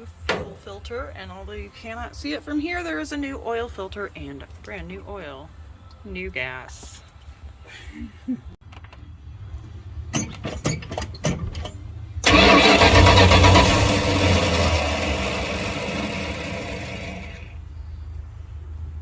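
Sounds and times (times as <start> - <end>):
pickup engine cranking and starting: 0.0 - 0.8, 8.7 - 17.6
engine running loudly: 12.2 - 17.6.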